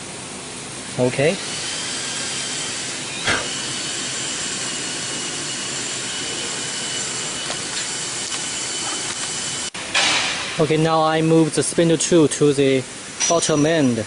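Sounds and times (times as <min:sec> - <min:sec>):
cnc router hiss and whine: 0:01.0 - 0:09.8.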